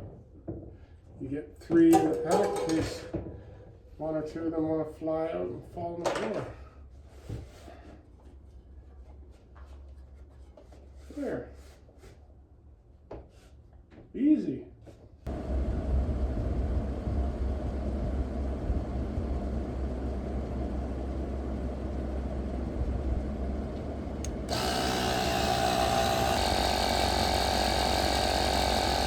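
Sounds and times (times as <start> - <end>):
air compressor running: 22.8 - 29.0.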